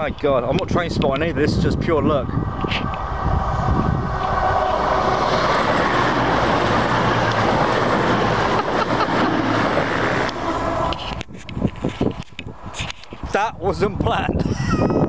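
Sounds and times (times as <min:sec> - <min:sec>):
diesel engine drone: 0:00.6 - 0:13.6
rush of train wheels: 0:01.4 - 0:13.4.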